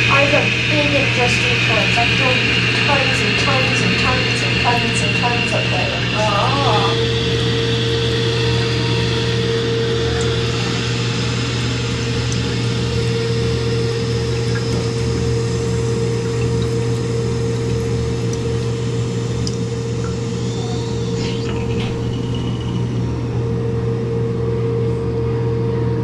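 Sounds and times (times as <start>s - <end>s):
toilet tank fill valve hissing: 0.0s - 24.3s
steady humming tone: 0.0s - 26.0s.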